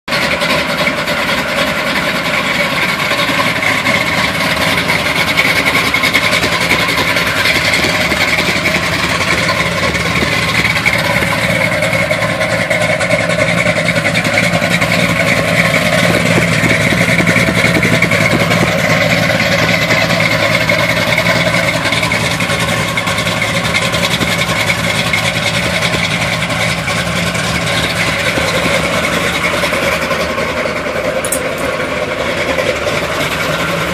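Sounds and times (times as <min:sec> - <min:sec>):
engine idling roughly: 0:00.0 - 0:33.9.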